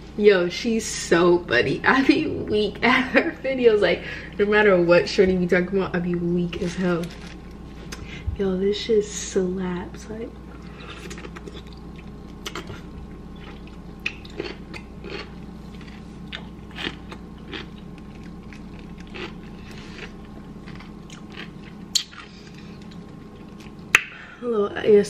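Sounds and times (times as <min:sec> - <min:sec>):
person crunching a pickle: 0:10.8 - 0:23.8.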